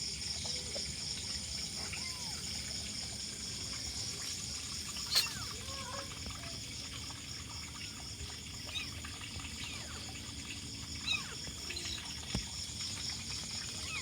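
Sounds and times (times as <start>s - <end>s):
kittens mewing: 5.0s - 6.6s, 8.6s - 10.0s, 10.9s - 12.1s.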